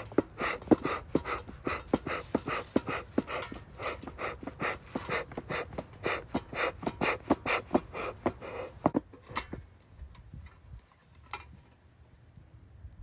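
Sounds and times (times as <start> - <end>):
rapid panting breaths: 0.0 - 9.0.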